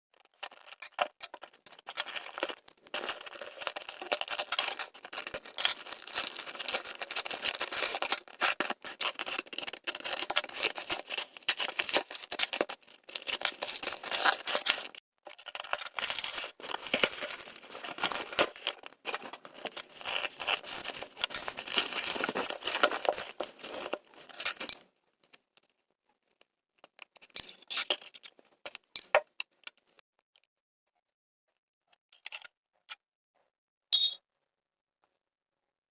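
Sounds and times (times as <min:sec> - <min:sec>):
packaging crinkling and tearing: 0:00.2 - 0:24.7.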